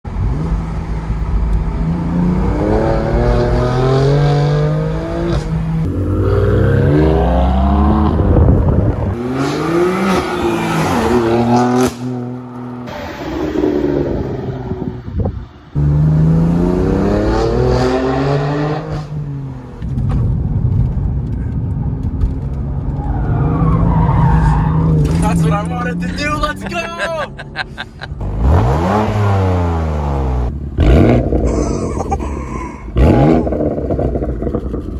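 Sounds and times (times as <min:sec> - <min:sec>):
car engine revving: 0:00.1 - 0:20.9, 0:27.3 - 0:34.9.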